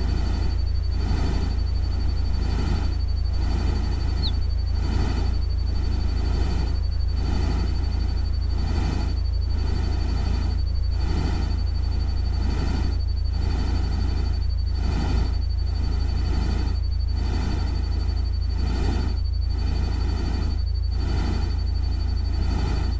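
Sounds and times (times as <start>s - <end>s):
deep rumble: 0.0s - 7.4s.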